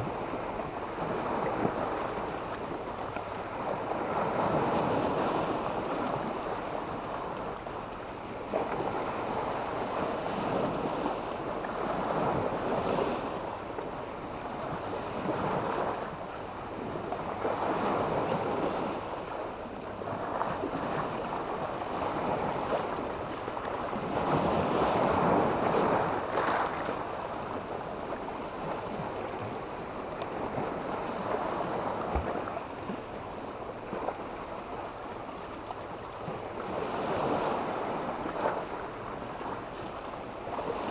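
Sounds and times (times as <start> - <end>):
small waves breaking on beach: 0.0 - 40.9
wind on microphone: 8.5 - 35.5.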